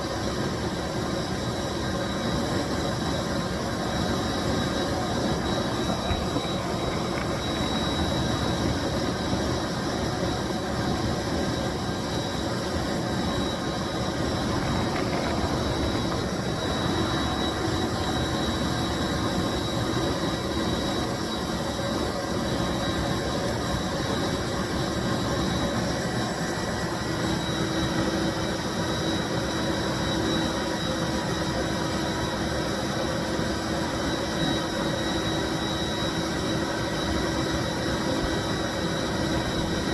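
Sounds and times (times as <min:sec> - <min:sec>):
carpet cleaning machine running: 0:00.5 - 0:30.7.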